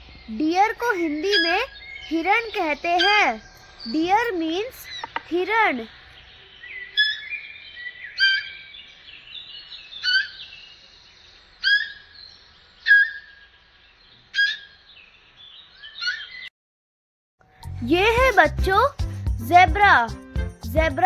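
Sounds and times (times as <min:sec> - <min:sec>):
sharp high descending calls: 0:00.8 - 0:05.9.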